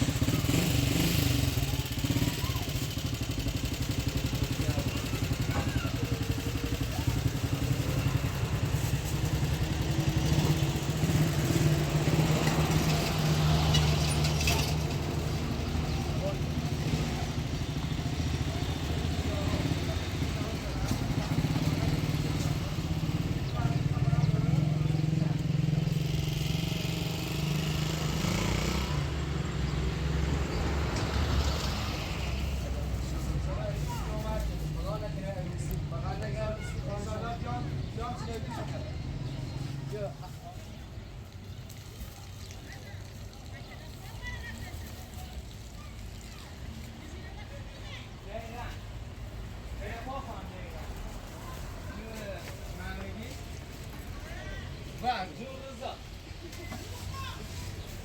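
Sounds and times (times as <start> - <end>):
vehicle engine running: 0.0 - 40.2.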